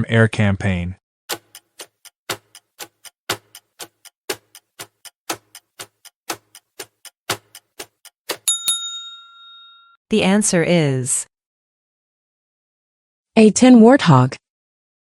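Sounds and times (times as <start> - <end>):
clock ticking: 1.3 - 8.6.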